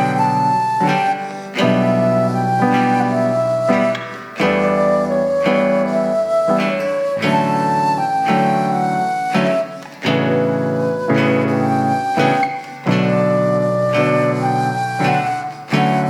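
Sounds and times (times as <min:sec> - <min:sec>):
guitar chords: 0:00.0 - 0:16.0
held melody line: 0:00.0 - 0:16.0
piano chords: 0:00.0 - 0:16.0.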